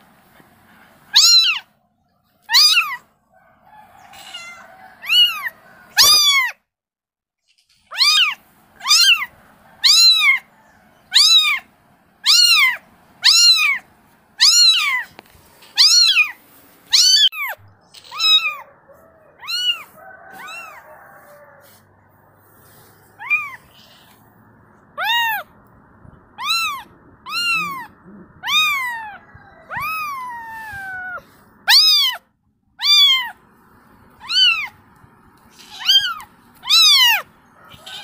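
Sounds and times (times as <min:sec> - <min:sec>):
kitten meowing: 0:01.1 - 0:01.7, 0:02.5 - 0:03.0, 0:04.1 - 0:06.6, 0:07.6 - 0:10.4, 0:11.1 - 0:11.6, 0:12.2 - 0:13.8, 0:14.4 - 0:18.6, 0:19.4 - 0:20.8, 0:23.2 - 0:24.2, 0:25.0 - 0:25.5, 0:26.4 - 0:32.2, 0:32.8 - 0:33.4, 0:34.2 - 0:34.8, 0:35.5 - 0:38.0.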